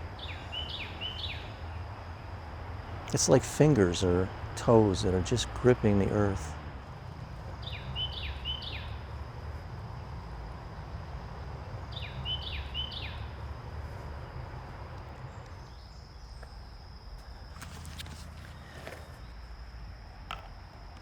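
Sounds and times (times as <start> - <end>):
high insect drone: 0.0 - 21.0
bird chirping: 0.2 - 1.8, 7.6 - 9.1, 11.7 - 13.4, 15.2 - 16.7.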